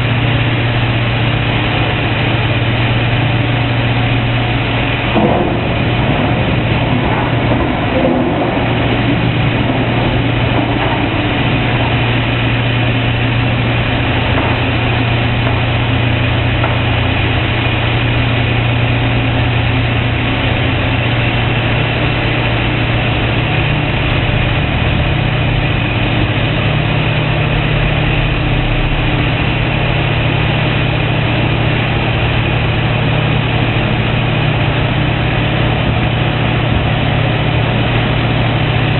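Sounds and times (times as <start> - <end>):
excavator diesel engines droning: 0.0 - 38.9.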